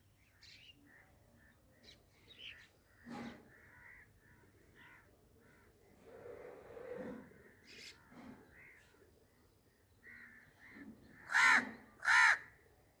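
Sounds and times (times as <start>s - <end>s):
bird harsh calls: 10.0s - 12.6s.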